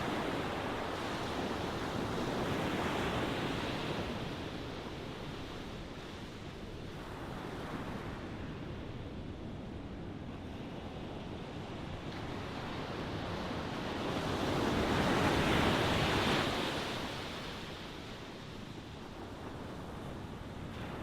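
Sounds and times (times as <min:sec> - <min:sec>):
ocean waves breaking on shore: 0:00.0 - 0:21.0.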